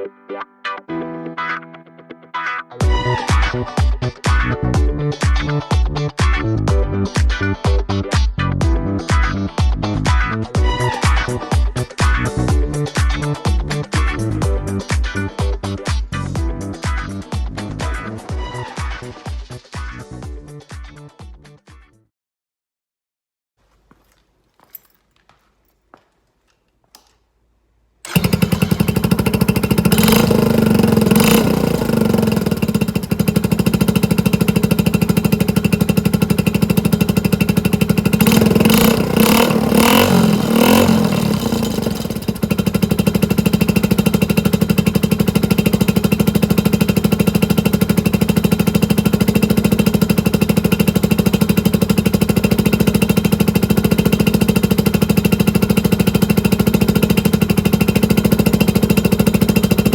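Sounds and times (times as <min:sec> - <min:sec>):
engine throttle blips: 0:28.0 - 0:59.9
motorcycle engine idling: 0:28.0 - 0:59.9.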